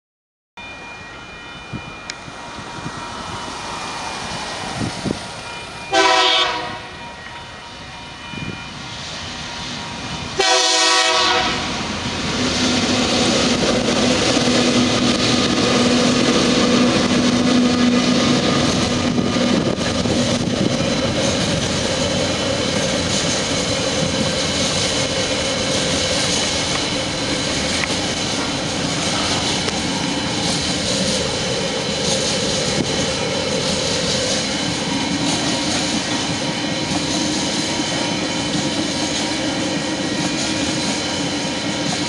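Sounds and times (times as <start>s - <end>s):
locomotive engine drone: 0.6s - 42.0s
train horn blasts: 5.9s - 7.8s, 10.4s - 11.8s.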